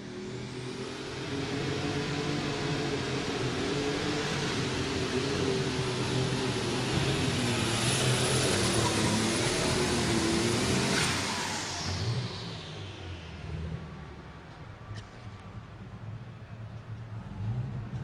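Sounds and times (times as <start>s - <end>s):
high turbo whine: 0.0s - 15.8s
pulling tractor engine at full power: 0.4s - 14.6s.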